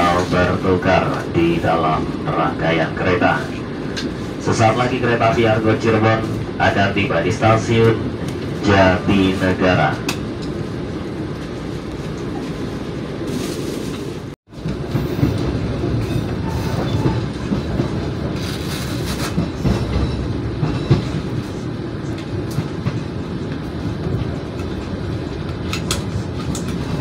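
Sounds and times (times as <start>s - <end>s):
train rumbling: 0.0s - 27.0s.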